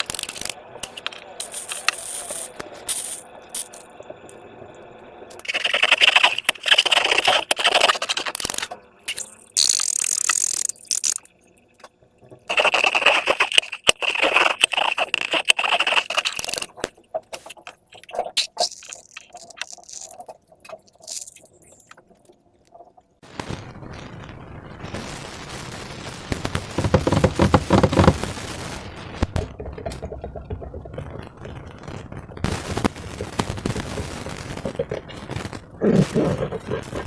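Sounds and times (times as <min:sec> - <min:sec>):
slime crackling and scraping: 0:05.4 - 0:11.3, 0:12.5 - 0:22.0, 0:26.6 - 0:28.4.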